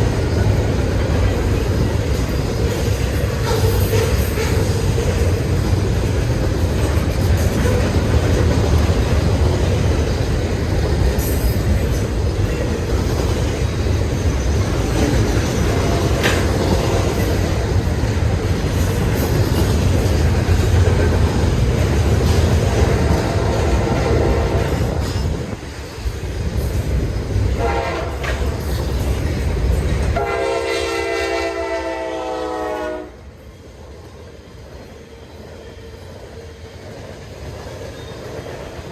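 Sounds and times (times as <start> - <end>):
train rumbling past: 0.0 - 38.9
locomotive air horn: 15.7 - 17.2, 23.1 - 25.0, 27.6 - 28.4, 30.2 - 33.2.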